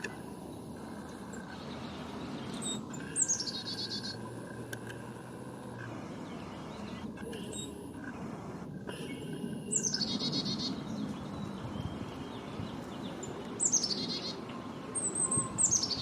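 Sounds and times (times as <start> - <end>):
songbird trilling: 0.8 - 4.7, 9.1 - 16.0.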